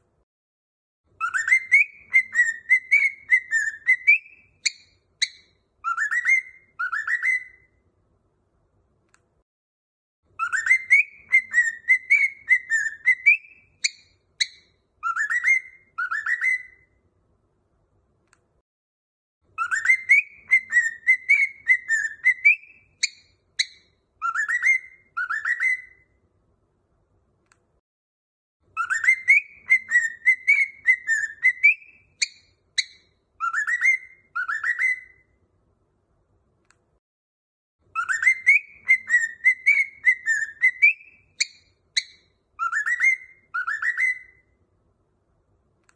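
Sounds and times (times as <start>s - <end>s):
cockatiel sharp chirps: 1.2s - 7.7s, 10.4s - 16.9s, 19.6s - 26.1s, 28.8s - 35.3s, 37.9s - 44.5s
cockatiel whistling: 1.2s - 7.8s, 10.4s - 17.0s, 19.6s - 26.2s, 28.8s - 35.4s, 37.9s - 44.5s.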